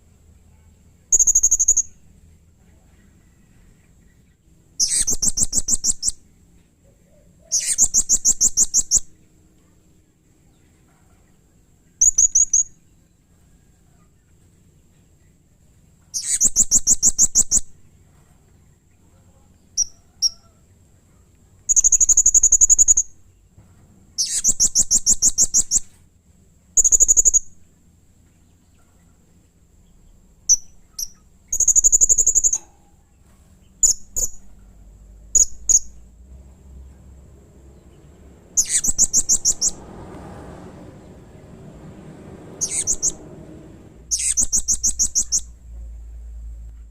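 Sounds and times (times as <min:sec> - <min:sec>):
parrot giving shrill pulsed trills: 0:38.6 - 0:39.8, 0:42.6 - 0:43.2, 0:44.1 - 0:45.6.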